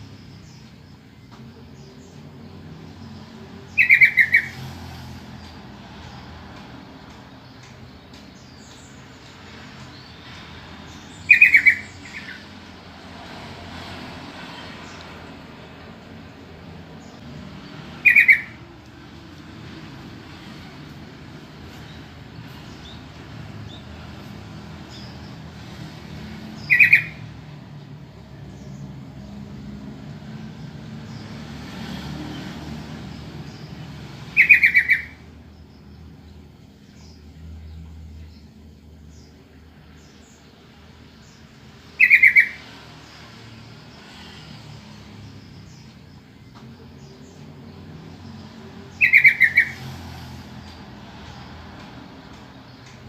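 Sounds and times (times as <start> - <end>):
bulbul calling: 3.7 - 4.6, 10.9 - 12.5, 17.9 - 18.8, 26.6 - 27.3, 34.3 - 35.3, 41.9 - 42.7, 48.9 - 49.9
faint bird chirps: 18.0 - 18.6, 41.2 - 42.7, 48.9 - 49.8.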